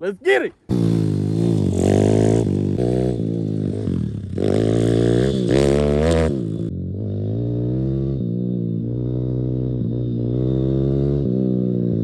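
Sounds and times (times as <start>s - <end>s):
motorbike engine revving: 0.7s - 12.0s.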